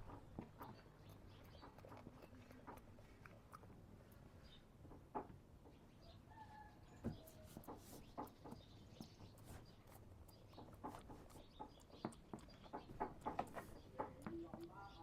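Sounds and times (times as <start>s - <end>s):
small grooming clicks: 0.0s - 4.3s, 7.5s - 15.0s.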